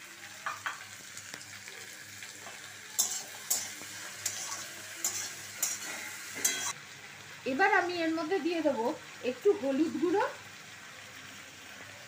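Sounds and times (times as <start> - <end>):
vegetables sizzling in hot oil: 0.0 - 12.0
metal spatula scraping pan: 3.0 - 6.8.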